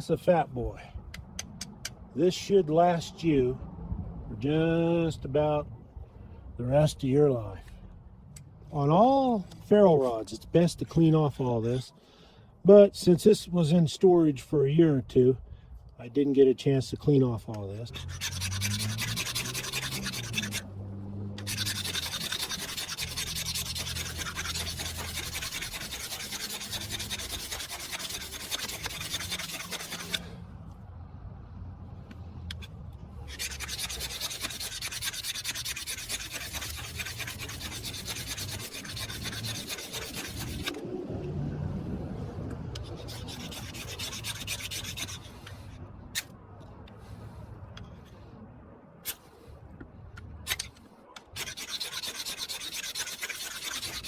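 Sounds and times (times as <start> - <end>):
knife scraping metal rod: 17.8 - 20.7, 21.4 - 30.3, 33.3 - 40.8, 42.8 - 46.3, 50.5 - 54.0.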